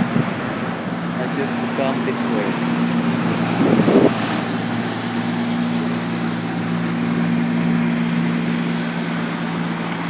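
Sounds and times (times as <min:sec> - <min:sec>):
engine running steadily: 0:00.0 - 0:10.0
street traffic noise: 0:00.0 - 0:10.0.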